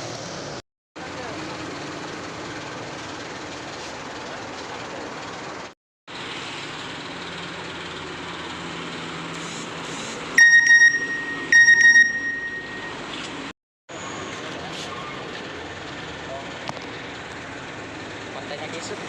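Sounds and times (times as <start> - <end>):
road traffic: 0.0 - 19.0
truck engine: 0.0 - 19.0
high-pitched truck horn blasts: 10.4 - 13.0.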